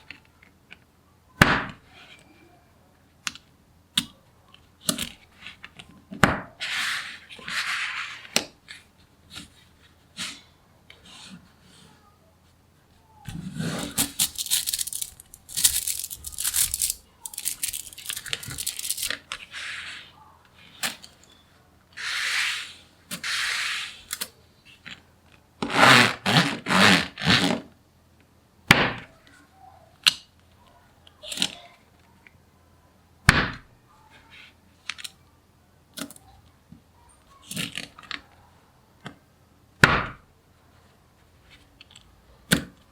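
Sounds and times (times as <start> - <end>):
magnetic balls snapping: 13.9 - 19.2
magnetic balls clicking and rattling: 13.9 - 19.4.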